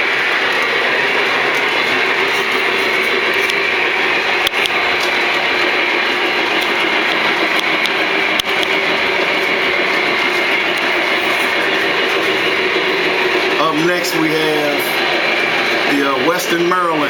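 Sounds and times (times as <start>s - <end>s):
model train running hum: 0.0s - 17.0s
sharp clicks: 4.4s - 12.3s.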